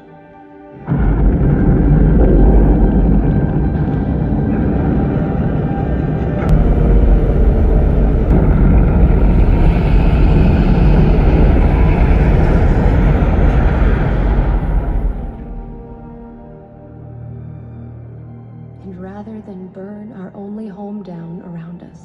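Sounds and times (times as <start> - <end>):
rushing noise: 0.8 - 16.9
deep rumble: 0.8 - 17.4.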